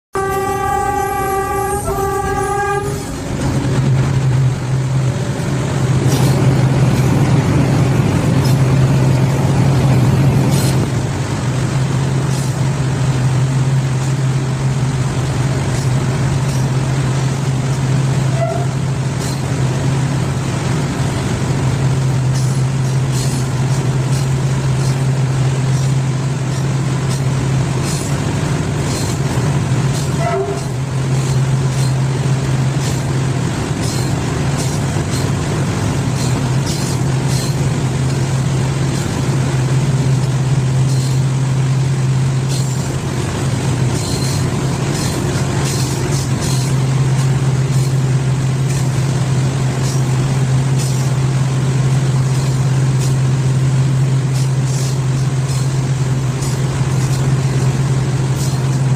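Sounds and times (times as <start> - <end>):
train rumbling through tunnel: 0.0 - 58.9
train horn: 0.1 - 3.3, 18.3 - 18.8, 30.2 - 30.8.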